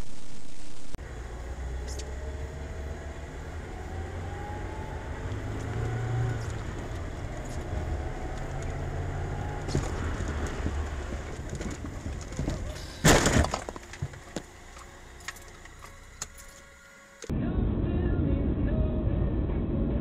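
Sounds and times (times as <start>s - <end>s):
car engine rumble: 0.0s - 20.0s
tyre noise: 5.1s - 14.5s.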